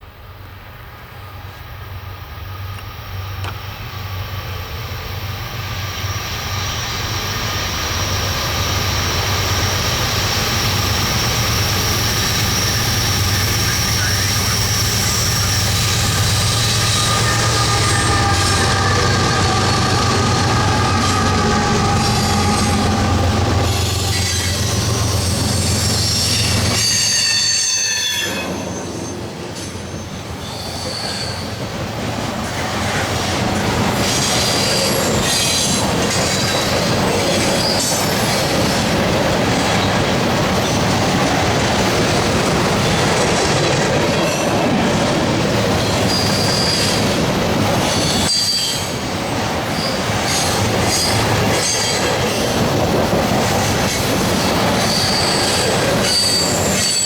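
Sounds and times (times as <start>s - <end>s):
diesel locomotive engine humming: 0.1s - 27.1s, 28.5s - 57.0s
freight car wheels squealing: 8.9s - 29.2s, 29.9s - 31.6s, 54.3s - 57.0s.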